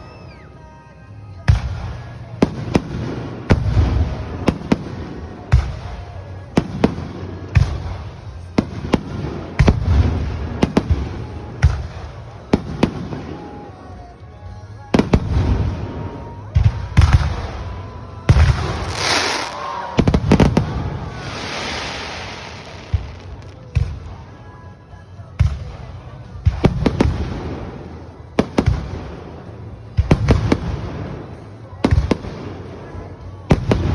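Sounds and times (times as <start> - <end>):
fireworks bangs: 18.3 - 23.9.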